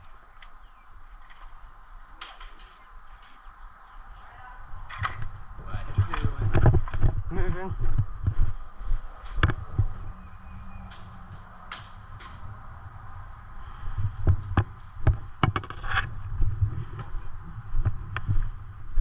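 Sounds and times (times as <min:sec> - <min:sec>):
footsteps: 0:01.1 - 0:12.6, 0:13.6 - 0:19.0
low rumble: 0:04.6 - 0:19.0.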